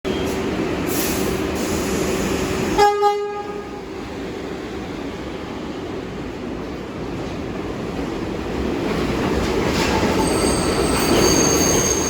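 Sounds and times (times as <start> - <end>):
subway train rumble and hum: 0.1 - 12.0
train signal toots: 9.9 - 12.0.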